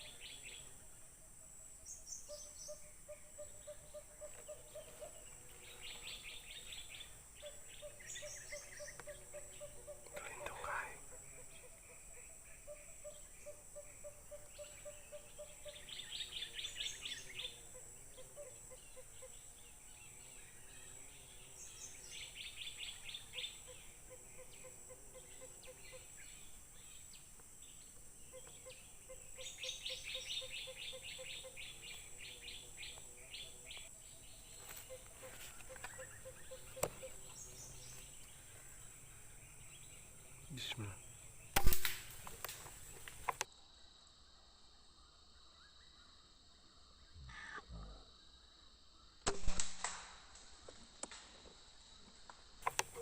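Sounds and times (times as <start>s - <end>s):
bird calls: 0.0s - 0.8s, 1.7s - 43.5s, 52.6s - 53.0s
sharp click: 41.5s - 43.5s.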